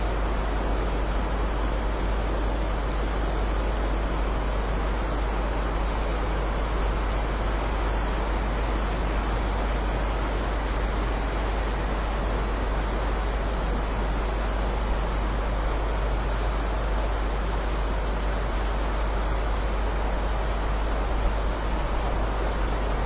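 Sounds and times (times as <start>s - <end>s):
heavy rain: 0.0s - 23.0s.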